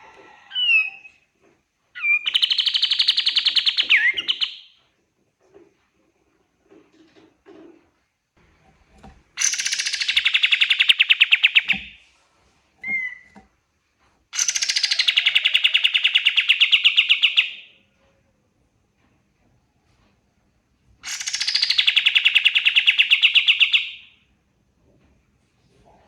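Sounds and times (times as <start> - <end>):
songbird trilling: 9.4 - 11.9, 14.4 - 17.6.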